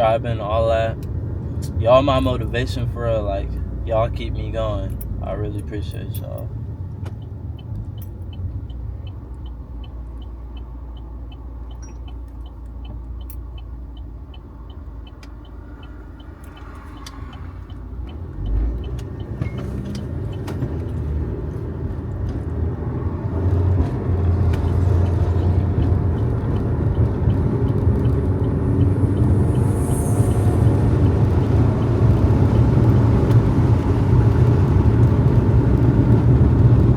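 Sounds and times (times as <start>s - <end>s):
engine and road noise: 0.0s - 36.9s
turn signal ticking: 0.0s - 36.9s.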